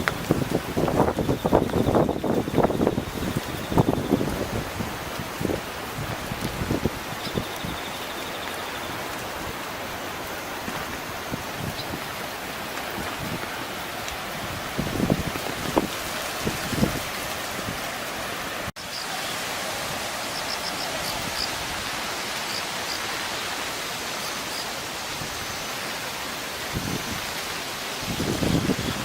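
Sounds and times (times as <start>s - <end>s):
wind buffeting microphone: 0.0s - 7.9s, 10.7s - 12.2s, 14.3s - 17.8s, 26.7s - 27.4s, 28.0s - 29.0s
river rushing: 0.0s - 29.0s.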